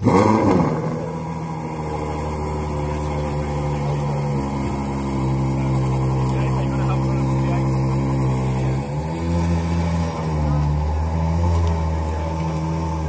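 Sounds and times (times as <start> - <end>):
car engine starting and idling: 0.0 - 13.0.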